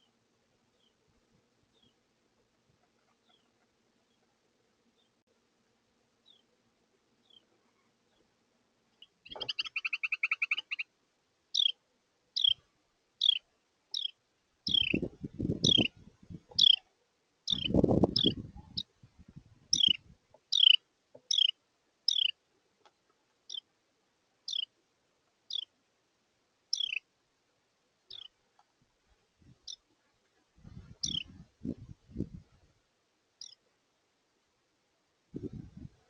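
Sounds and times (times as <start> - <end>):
wren buzzy chatter: 14.0 - 15.9, 16.5 - 16.8, 17.5 - 18.9, 19.7 - 21.5, 26.7 - 27.0
bird call notes: 16.6 - 16.8, 19.8 - 22.3, 26.8 - 27.0.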